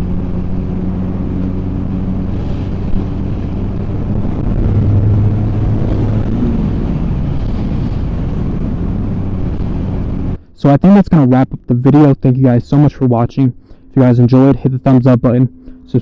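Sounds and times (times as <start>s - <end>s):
motorcycle engine running: 0.0s - 10.4s
wind and road noise: 0.0s - 16.0s.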